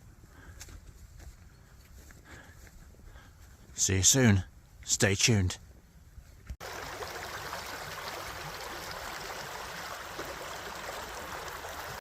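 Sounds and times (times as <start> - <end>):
running water rushing: 6.6 - 12.0.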